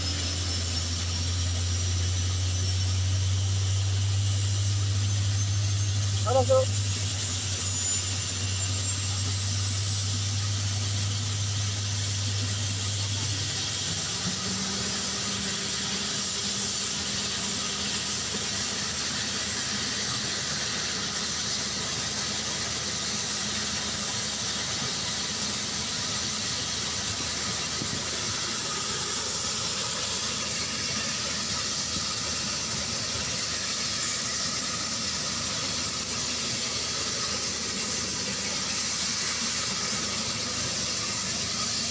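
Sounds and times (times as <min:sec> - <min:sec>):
low hum: 0:00.0 - 0:16.0
helicopter turbine hiss: 0:00.0 - 0:41.9.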